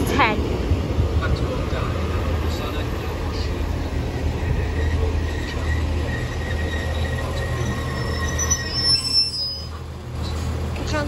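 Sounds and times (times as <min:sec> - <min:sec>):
diesel train engines humming: 0:00.0 - 0:11.0
high thin squeal: 0:04.6 - 0:09.8.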